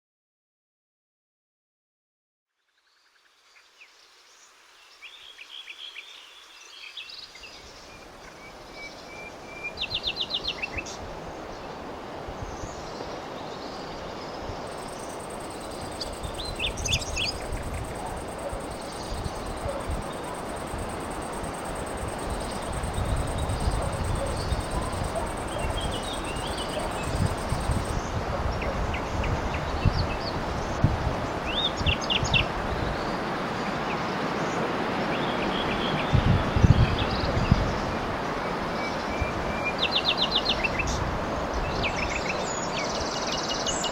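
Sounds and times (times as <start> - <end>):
low wind buffeting: 11.0 - 33.4, 35.9 - 38.3
birds singing and calling: 12.4 - 30.4
steady rushing noise: 14.0 - 28.5.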